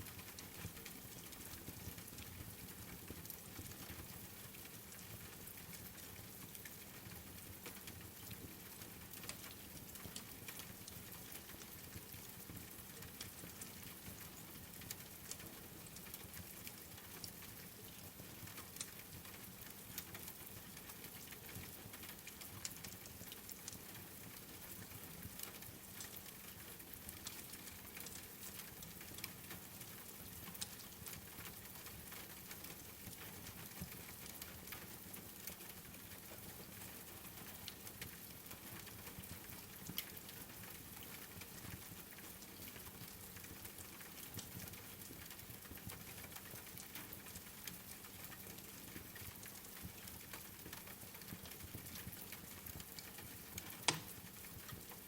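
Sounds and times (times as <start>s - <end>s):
wood fire crackling: 19.6s - 24.7s, 25.4s - 55.0s
rain hiss: 53.0s - 54.9s.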